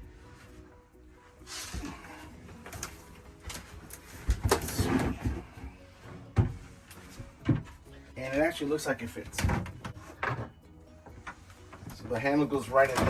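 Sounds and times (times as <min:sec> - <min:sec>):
wood sliding and scraping: 0:01.3 - 0:13.0.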